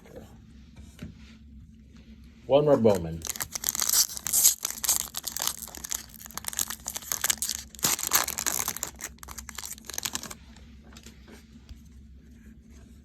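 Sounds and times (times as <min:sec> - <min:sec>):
wrapper tearing and crinkling: 0:03.2 - 0:10.4.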